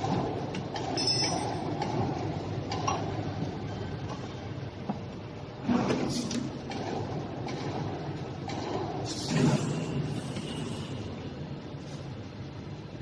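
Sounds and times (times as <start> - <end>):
metallic clink: 1.0 - 1.6.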